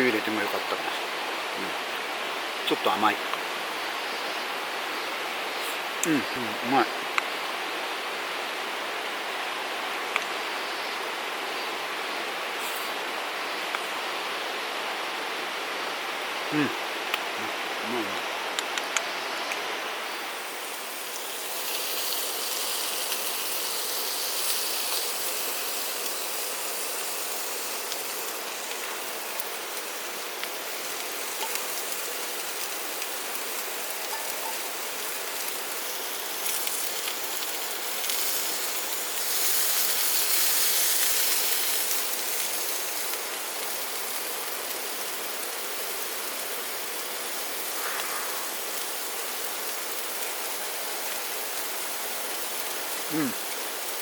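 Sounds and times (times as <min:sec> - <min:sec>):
running water rushing: 0:00.0 - 0:54.0.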